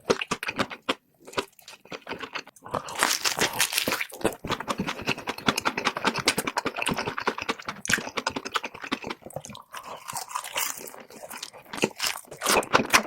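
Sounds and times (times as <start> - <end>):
crunchy chewing and biting: 0.0 - 13.0.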